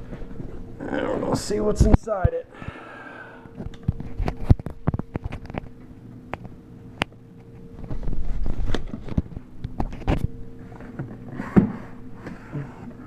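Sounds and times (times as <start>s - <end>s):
rustling and scraping of packing: 3.5s - 5.8s, 7.4s - 13.0s.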